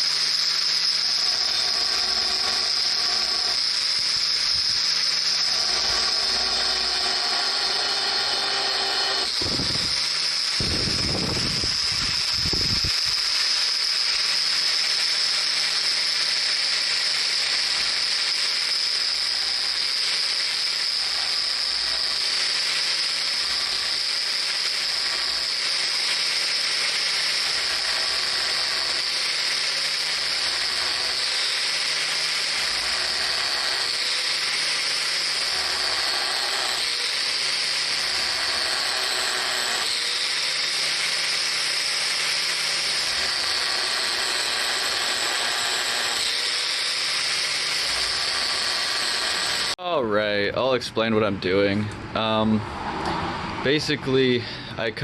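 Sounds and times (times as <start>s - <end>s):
grinding wheel whining on pipe: 0.0s - 49.8s.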